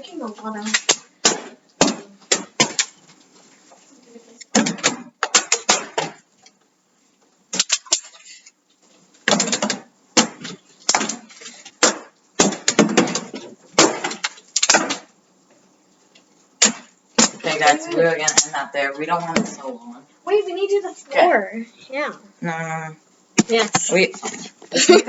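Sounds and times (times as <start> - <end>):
plastic bottles thudding and clattering: 0.6 - 3.0, 4.5 - 6.3, 9.2 - 15.1, 16.6 - 18.4.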